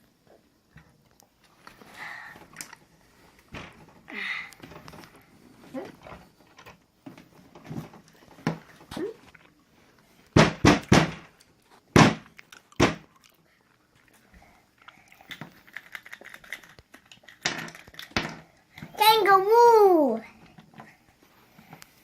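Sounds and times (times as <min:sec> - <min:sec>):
faint clicks and rustling: 0:00.3 - 0:10.4, 0:11.3 - 0:19.0
hard knocks: 0:10.4 - 0:11.3, 0:11.9 - 0:13.0.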